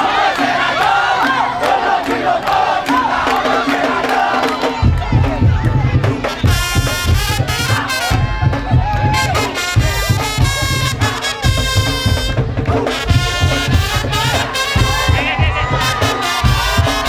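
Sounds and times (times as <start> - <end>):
fast heavy drumming: 0.0 - 17.0
piercing wind instrument melody: 6.1 - 17.0.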